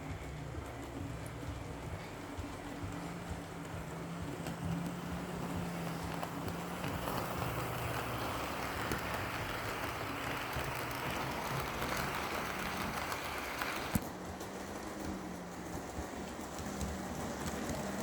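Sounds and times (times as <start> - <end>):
small clicks from rails: 0.0 - 18.0
wheel rumble: 0.0 - 18.0
model train motor hum: 2.2 - 14.0.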